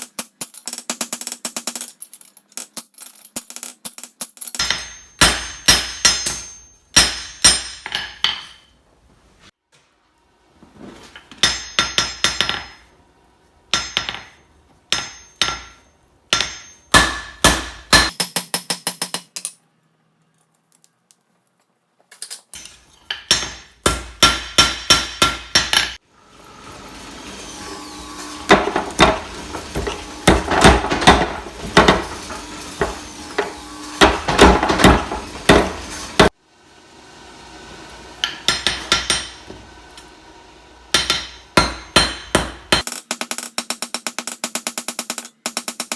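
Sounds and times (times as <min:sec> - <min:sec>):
hammer striking steel on anvil: 0:04.6 - 0:08.7, 0:11.3 - 0:12.9, 0:13.7 - 0:19.4, 0:22.6 - 0:26.0, 0:27.6 - 0:36.3, 0:37.6 - 0:43.0.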